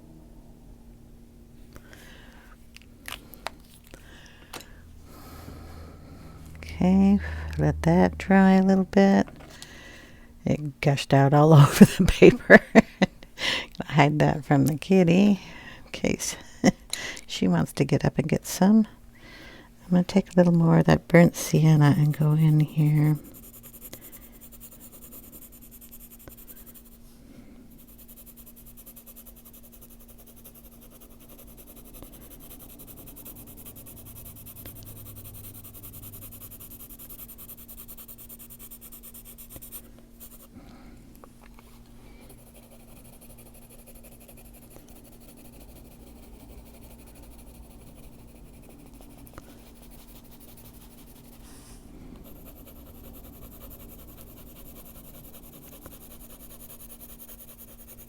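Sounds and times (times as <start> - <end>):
faint steady hum: 0.0 - 58.0
pencil scratching on paper: 21.3 - 27.0, 27.7 - 40.5, 42.3 - 58.0.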